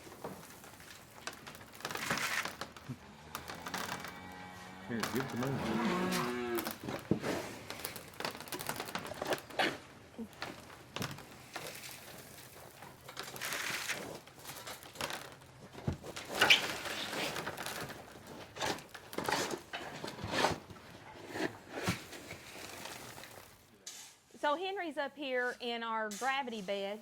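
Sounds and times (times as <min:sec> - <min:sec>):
cattle knocking metal feeders: 0:00.0 - 0:13.5.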